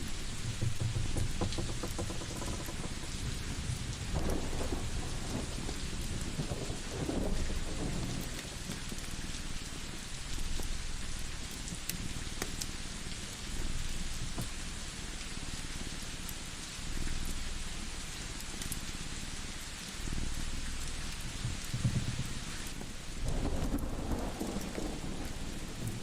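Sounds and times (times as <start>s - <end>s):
thunder rolling: 0.0s - 9.0s, 23.2s - 26.0s
sharp crackles: 0.0s - 12.7s
steady rain: 0.0s - 26.0s.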